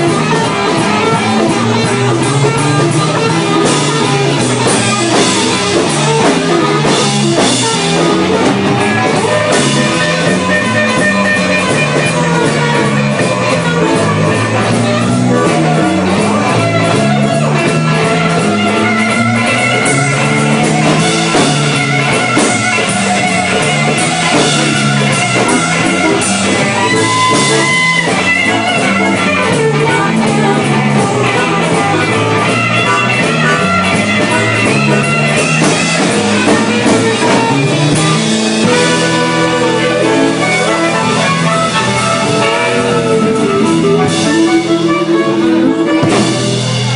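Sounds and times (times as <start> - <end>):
drum kit beat: 0.0 - 46.9
electric guitar: 0.0 - 46.9
stepping bass line: 0.0 - 46.9.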